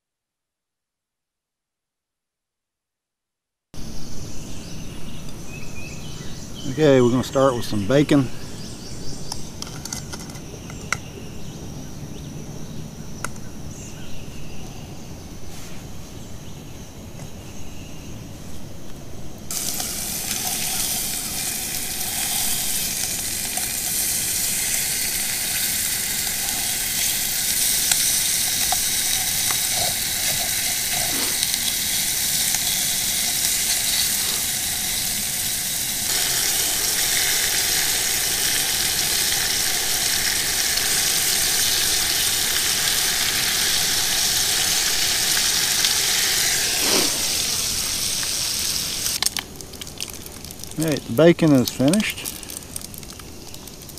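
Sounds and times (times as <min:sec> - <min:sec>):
bacon sizzling in a pan: 0:19.5 - 0:53.9.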